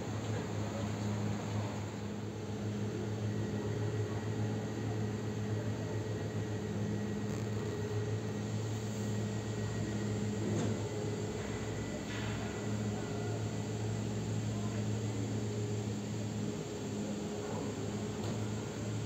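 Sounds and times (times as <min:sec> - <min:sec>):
distant electric train hum: 0:07.6 - 0:19.0.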